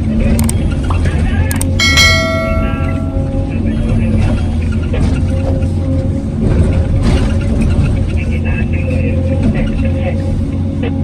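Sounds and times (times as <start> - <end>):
metallic ringing: 1.8 - 3.6.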